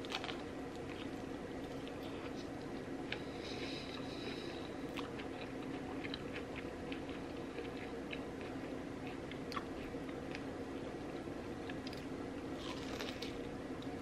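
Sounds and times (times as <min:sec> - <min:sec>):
chewing food: 0:00.0 - 0:10.9
steady low hum: 0:00.0 - 0:14.0.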